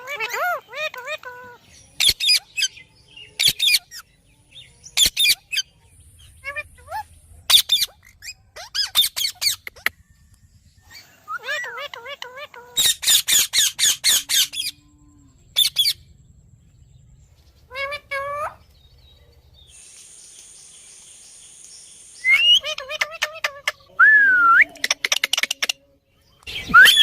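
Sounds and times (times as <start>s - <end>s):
parakeet screeching and calling: 0.0s - 4.1s, 4.9s - 9.9s, 10.8s - 14.8s, 15.5s - 16.1s, 17.7s - 18.7s, 22.2s - 24.0s
steady high hiss: 19.6s - 22.7s.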